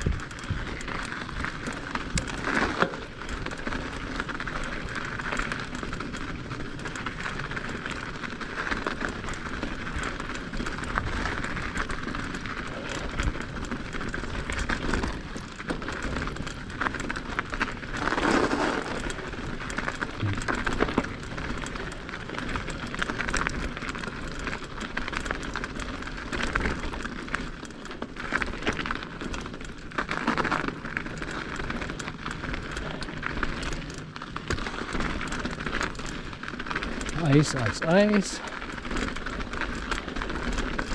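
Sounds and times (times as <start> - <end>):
bike rattling: 0.0 - 40.9
bike tyres crackling over icy snow: 0.0 - 40.9.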